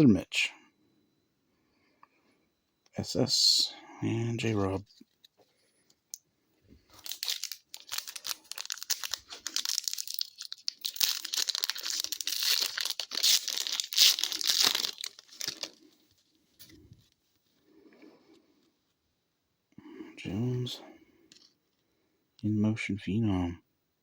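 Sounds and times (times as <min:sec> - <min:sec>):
card pack wrapper tearing and crinkling: 0:06.9 - 0:16.0.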